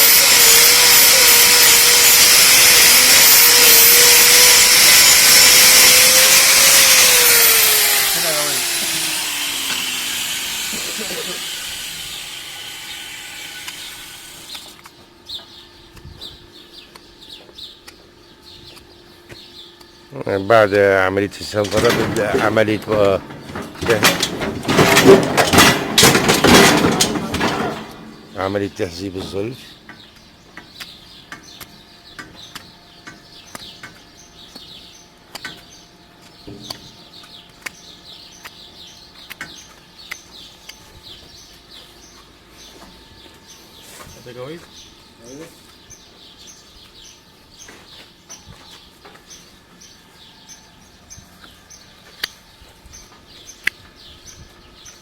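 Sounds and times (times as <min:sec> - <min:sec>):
small birds chirping: 0:07.2 - 0:24.3, 0:27.8 - 0:55.0
sharp clicks and knocks: 0:21.5 - 0:34.7.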